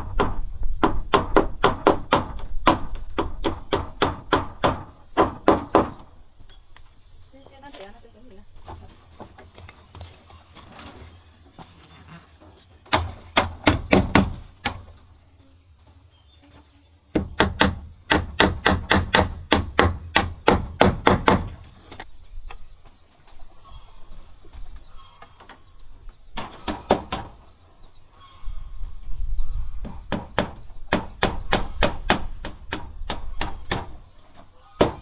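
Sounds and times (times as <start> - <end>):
sharp blows on wood: 12.9 - 14.9, 17.1 - 21.7.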